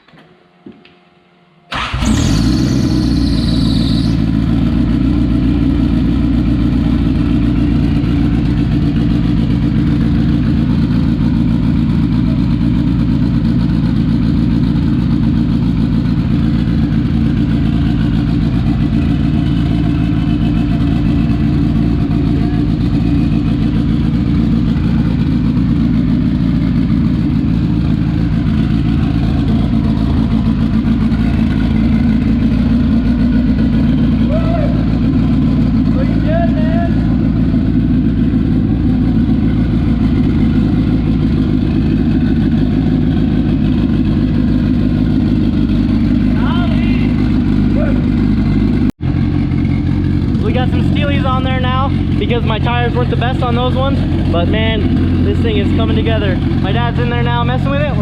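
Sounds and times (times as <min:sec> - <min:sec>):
turbo whine: 0:00.6 - 0:11.2
car engine starting: 0:01.7 - 0:58.0.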